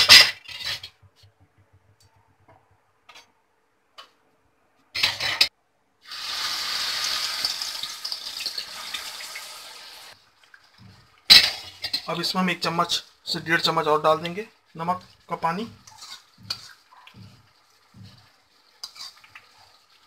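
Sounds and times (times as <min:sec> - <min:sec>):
banana slices sizzling in oil: 0:05.0 - 0:20.0.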